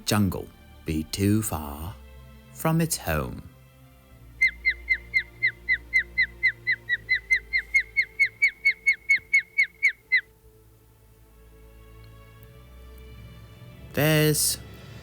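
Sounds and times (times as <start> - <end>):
faint background music: 0.0 - 15.0
osprey whistled chirps: 4.3 - 10.3.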